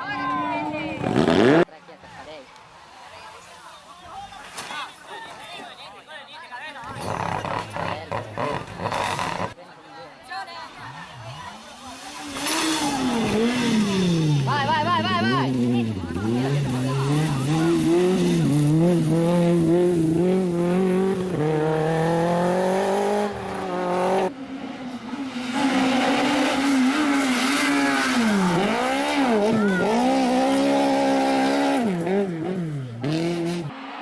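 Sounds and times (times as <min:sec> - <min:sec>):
rally car engines revving: 0:00.9 - 0:01.8, 0:06.8 - 0:09.6, 0:10.7 - 0:34.0.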